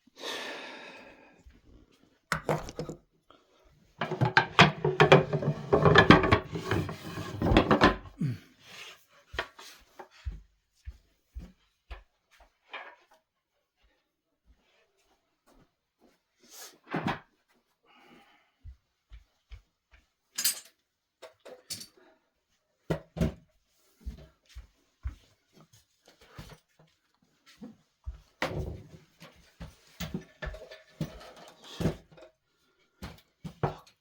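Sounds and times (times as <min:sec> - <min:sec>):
objects clicking and knocking: 0:02.3 - 0:03.0, 0:04.0 - 0:08.1.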